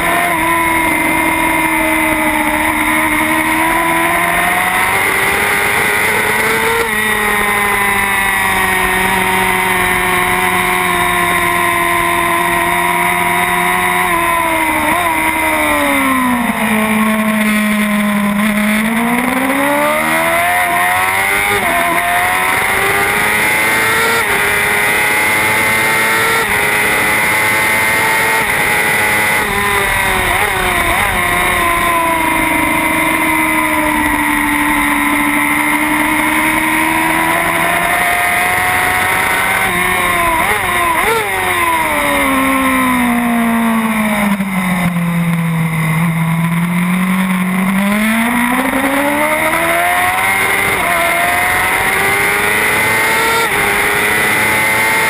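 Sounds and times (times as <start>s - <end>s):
racing motorcycle engine revving: 0.0s - 55.0s
wind rushing: 28.7s - 35.6s.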